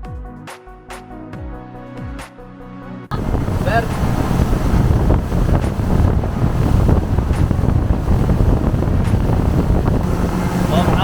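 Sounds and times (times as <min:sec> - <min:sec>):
boat running noise: 0:03.1 - 0:11.0
water rushing: 0:03.1 - 0:11.0
wind buffeting microphone: 0:03.1 - 0:11.0.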